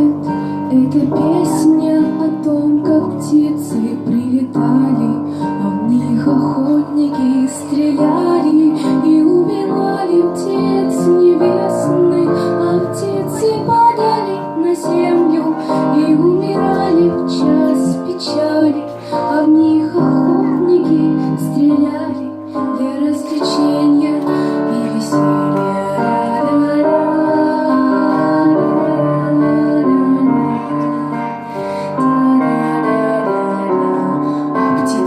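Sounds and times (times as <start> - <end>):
instrumental backing: 0.0 - 35.0
woman singing: 0.0 - 35.0.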